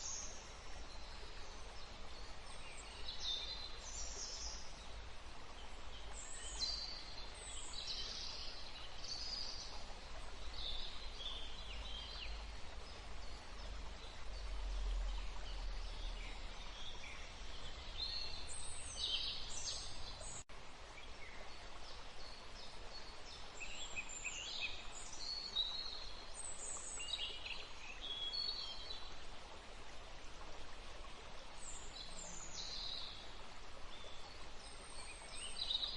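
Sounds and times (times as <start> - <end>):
small birds chirping: 0.0 - 5.0
steady background hiss: 0.0 - 35.9.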